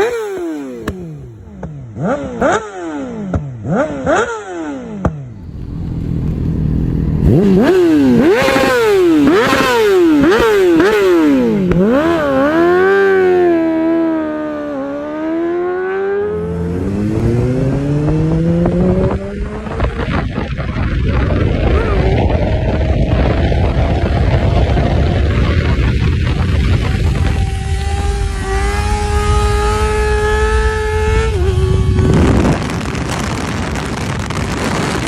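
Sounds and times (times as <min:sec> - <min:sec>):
exhaust crackling pops: 0:00.0 - 0:02.5, 0:11.6 - 0:12.0, 0:31.8 - 0:35.0
motorcycle engine revving: 0:00.0 - 0:35.0.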